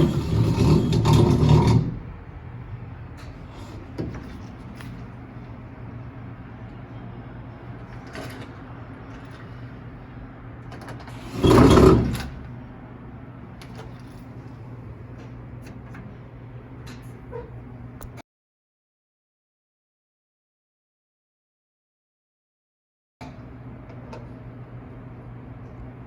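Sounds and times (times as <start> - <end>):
washing machine humming: 0.0 - 18.1, 23.2 - 26.0.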